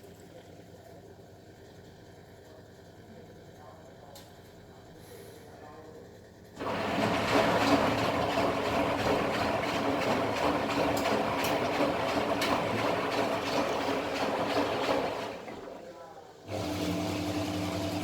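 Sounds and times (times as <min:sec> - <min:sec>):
washing machine running: 0:06.3 - 0:18.0.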